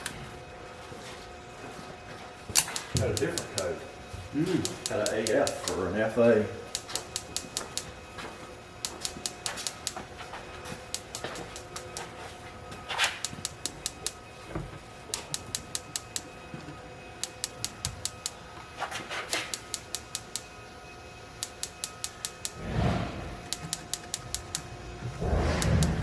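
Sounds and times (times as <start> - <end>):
spark igniter ticking: 2.5 - 8.2, 8.8 - 12.2, 12.8 - 14.4, 15.0 - 16.5, 17.1 - 20.6, 21.3 - 26.0.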